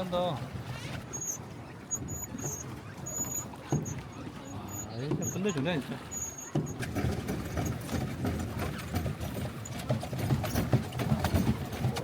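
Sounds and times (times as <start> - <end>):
water sloshing: 0.0 - 12.0
paddles knocking against hull: 1.9 - 12.0.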